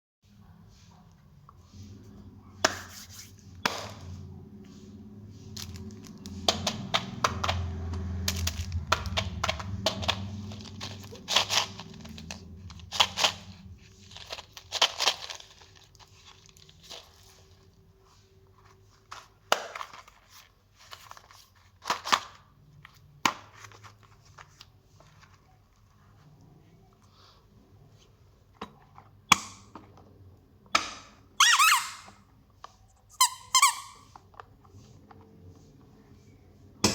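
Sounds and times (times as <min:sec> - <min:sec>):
plastic wrappers crinkling: 0:05.5 - 0:06.9, 0:07.8 - 0:22.4.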